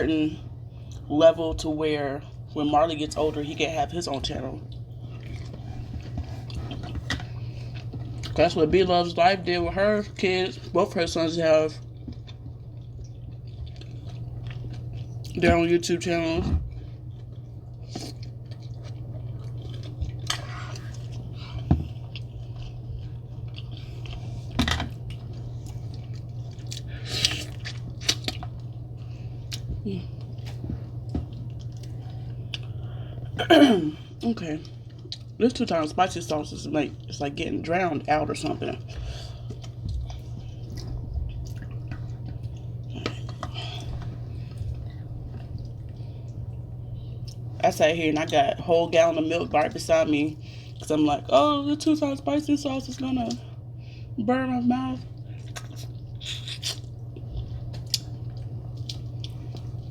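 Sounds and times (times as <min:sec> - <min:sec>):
steady low hum: 0:00.0 - 0:59.9
wet chewing: 0:04.6 - 0:08.7, 0:11.6 - 0:15.5, 0:16.7 - 0:33.0, 0:38.3 - 0:46.6, 0:55.1 - 0:59.9
wet sticky eating sounds: 0:55.1 - 0:59.9.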